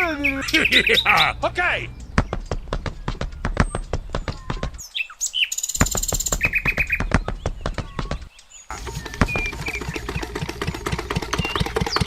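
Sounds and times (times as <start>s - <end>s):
small birds chirping and trilling: 0.0s - 12.0s
rapid sharp clicks: 8.7s - 12.0s.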